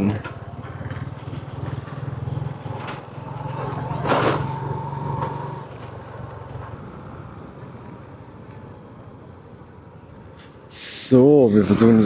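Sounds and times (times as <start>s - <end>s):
motorbike engine running: 0.0s - 8.4s.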